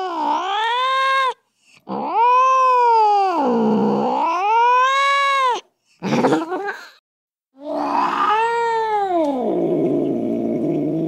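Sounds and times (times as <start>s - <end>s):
cat yowling angrily: 0.0s - 5.6s, 7.6s - 9.6s.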